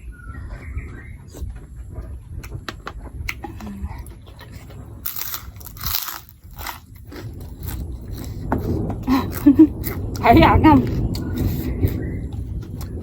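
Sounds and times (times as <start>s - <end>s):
low rumble: 0.0s - 13.0s
person chewing: 3.3s - 10.2s, 10.8s - 13.0s.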